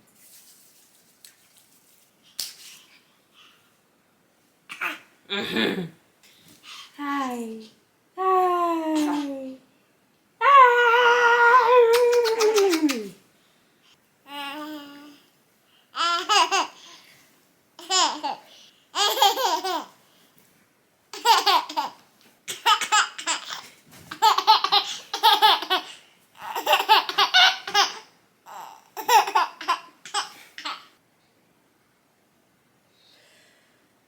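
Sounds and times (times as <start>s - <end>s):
baby laughing and babbling: 4.7s - 5.1s, 9.0s - 9.6s, 11.6s - 13.2s, 16.0s - 17.0s, 17.8s - 20.0s, 21.1s - 31.0s.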